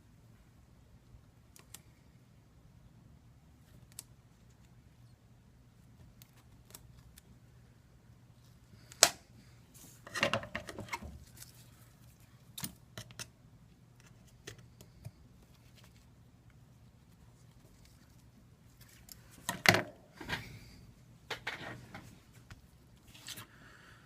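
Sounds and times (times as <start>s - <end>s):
scraping and rustling handling noise: 9.7s - 13.3s, 13.9s - 23.5s.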